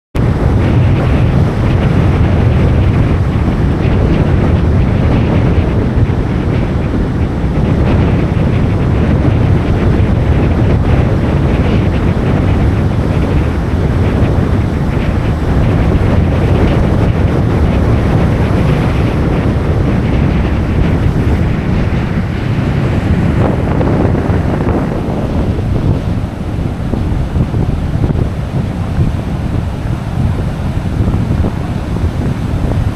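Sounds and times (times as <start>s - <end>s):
surf breaking on beach: 0.2s - 32.9s
wind buffeting microphone: 0.2s - 32.9s.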